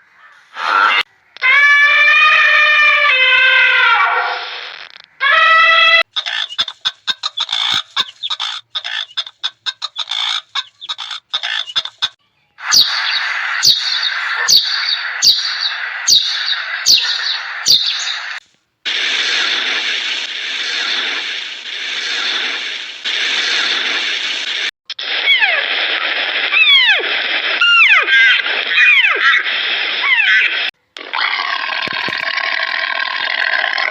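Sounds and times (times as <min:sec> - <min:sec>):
sharp falling animal call: 0:00.6 - 0:04.5, 0:05.1 - 0:18.4
quick high animal calls: 0:05.2 - 0:18.4
steady hiss: 0:17.5 - 0:24.7.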